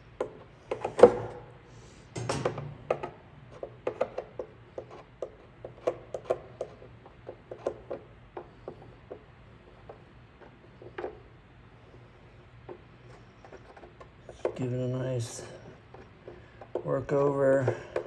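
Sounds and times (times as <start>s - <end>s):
low steady hum: 0.0s - 18.0s
tool tip tapping and scraping plastic: 3.6s - 9.2s.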